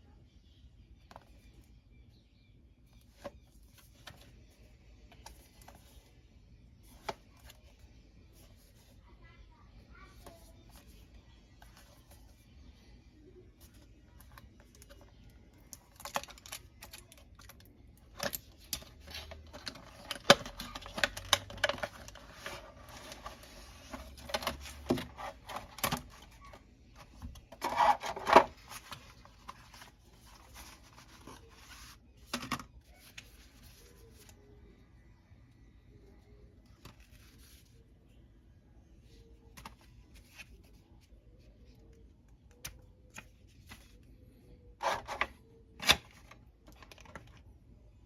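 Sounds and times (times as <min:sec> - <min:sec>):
packaging clicks and taps: 0:14.2 - 0:26.3
cardboard and plastic rustling: 0:15.9 - 0:34.4.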